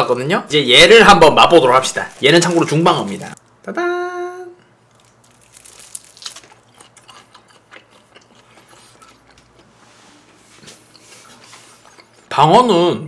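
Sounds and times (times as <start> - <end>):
person chewing raw fish: 4.8 - 9.7.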